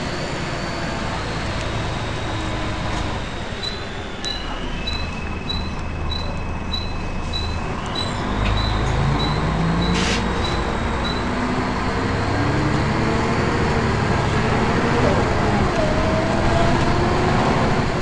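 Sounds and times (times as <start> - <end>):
bus engine pulling away: 0.0 - 18.0
high-pitched whine: 0.0 - 18.0
rapid high beeping: 3.6 - 11.4
brief air hiss: 10.0 - 10.3.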